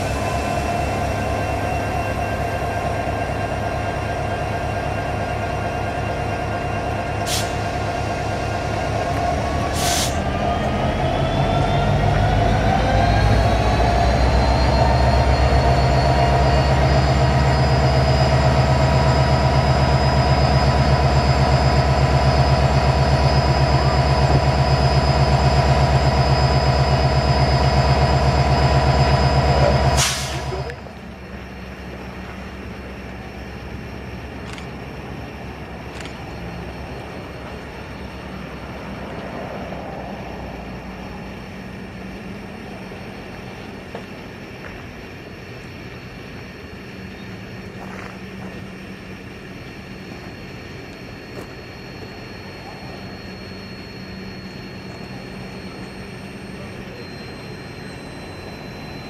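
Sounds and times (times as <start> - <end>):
diesel locomotive engine drone: 0.0 - 59.0.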